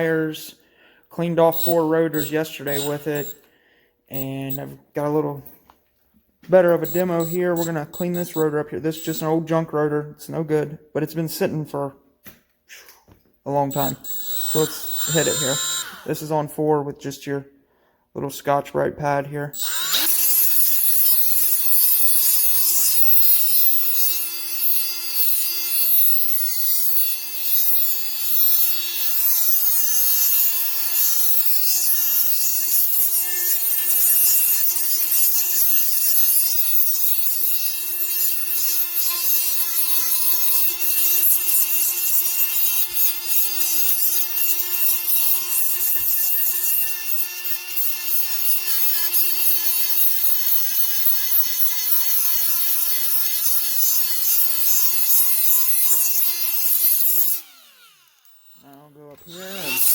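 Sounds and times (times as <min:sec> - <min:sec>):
abrasive pad scratching metal: 0:01.4 - 0:03.4
die grinder motor whine: 0:01.4 - 0:03.4, 0:06.7 - 0:09.4, 0:13.6 - 0:16.3, 0:19.6 - 0:59.9.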